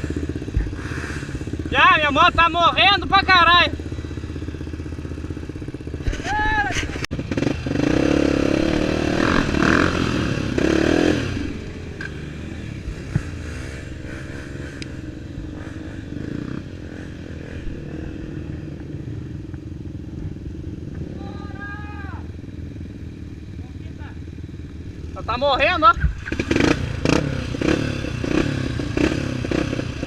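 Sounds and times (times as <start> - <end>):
motorcycle engine revving and idling: 0.0 - 30.0.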